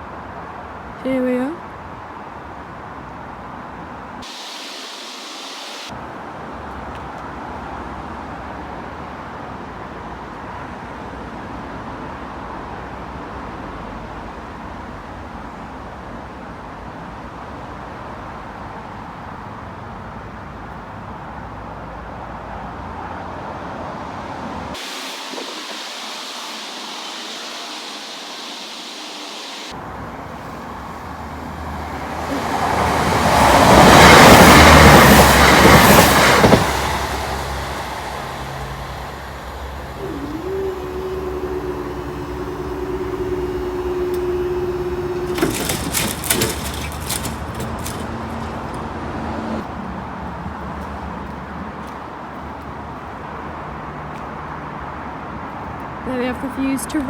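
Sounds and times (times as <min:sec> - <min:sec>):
train passing: 0:24.5 - 0:51.3.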